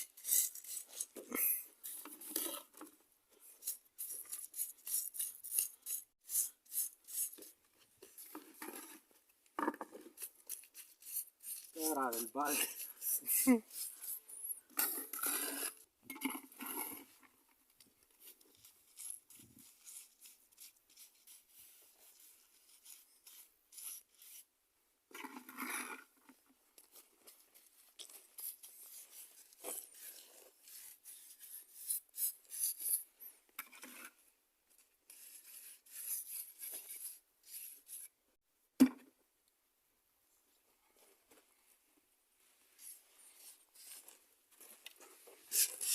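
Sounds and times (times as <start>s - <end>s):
trowel scraping wet mortar: 0.0s - 2.8s, 3.6s - 7.6s, 9.8s - 17.1s, 45.4s - 45.9s.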